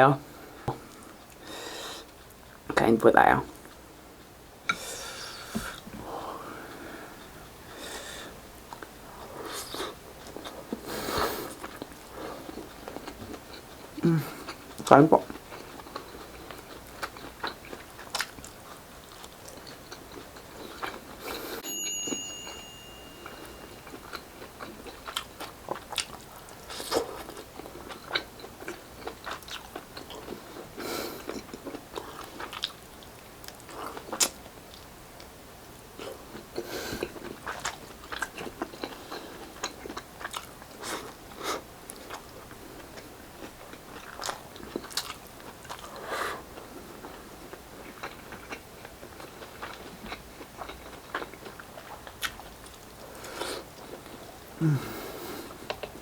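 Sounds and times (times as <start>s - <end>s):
person chewing food: 4.7s - 21.7s, 23.0s - 35.3s, 36.0s - 56.0s.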